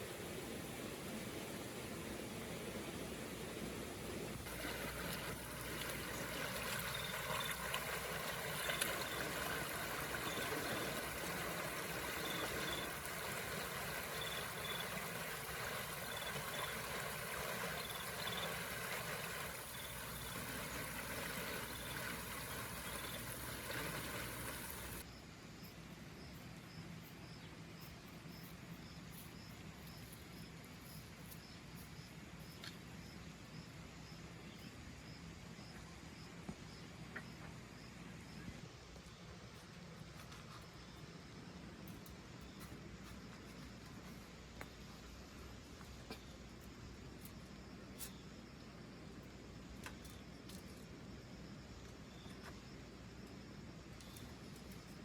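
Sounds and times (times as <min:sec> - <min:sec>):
forest hiss: 0:00.0 - 0:37.0.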